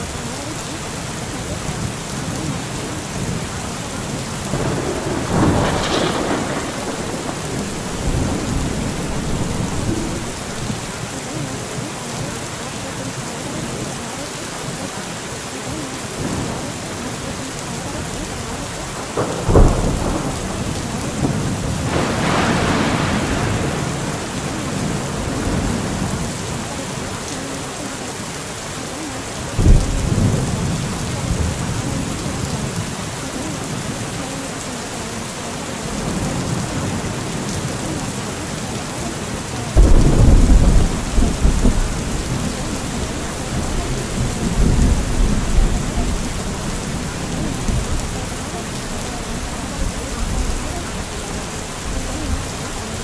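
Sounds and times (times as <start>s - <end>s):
thunder rumbling: 0.0s - 14.0s, 16.0s - 27.3s, 29.2s - 34.7s, 35.3s - 53.0s
steady rain: 0.0s - 53.0s
sharp thunder crack: 4.5s - 10.9s, 19.0s - 26.1s, 39.8s - 48.2s.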